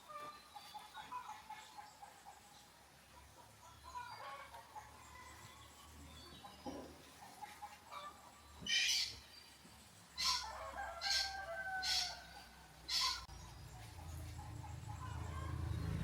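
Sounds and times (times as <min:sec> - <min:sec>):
chickens clucking and squawking: 0:00.0 - 0:09.4, 0:10.0 - 0:16.0
chicken cackle: 0:10.2 - 0:13.3.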